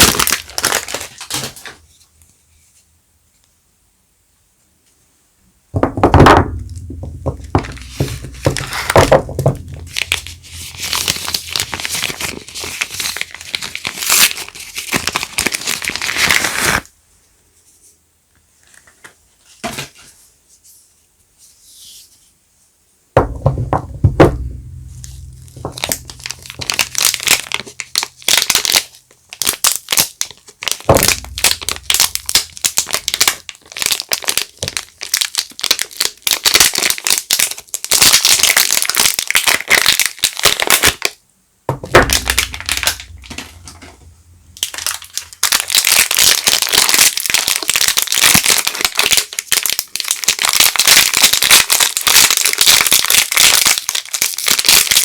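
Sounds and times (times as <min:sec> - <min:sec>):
packaging crinkling: 0:00.0 - 0:01.8, 0:06.6 - 0:16.9, 0:23.5 - 0:41.2, 0:41.8 - 0:55.0
dull thumps: 0:05.8 - 0:11.7, 0:23.2 - 0:27.6, 0:30.8 - 0:33.2, 0:41.7 - 0:45.2.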